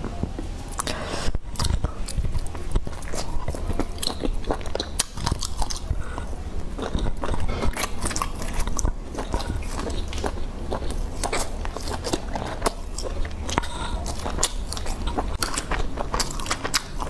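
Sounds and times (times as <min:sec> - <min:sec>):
mouth clicks and smacks: 0:00.7 - 0:17.0
person biting and chewing: 0:00.7 - 0:17.0.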